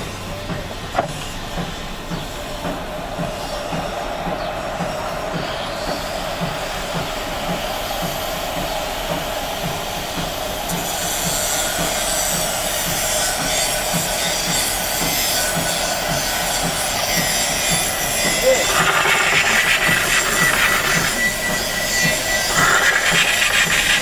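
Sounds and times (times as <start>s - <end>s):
machine running with low beat: 0.0s - 24.0s
high hiss: 18.4s - 24.0s.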